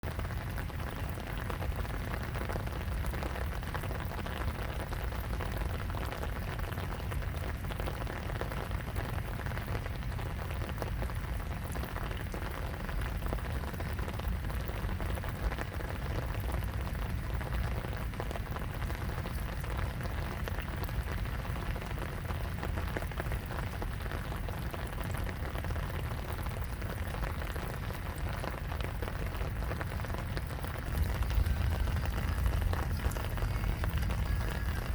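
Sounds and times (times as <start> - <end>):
rain patter: 0.0 - 34.9
low rumble: 30.5 - 34.9.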